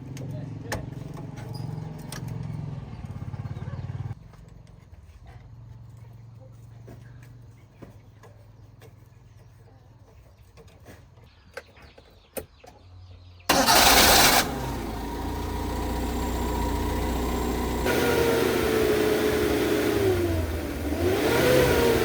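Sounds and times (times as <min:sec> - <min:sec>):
truck engine starting and running: 0:13.5 - 0:22.0.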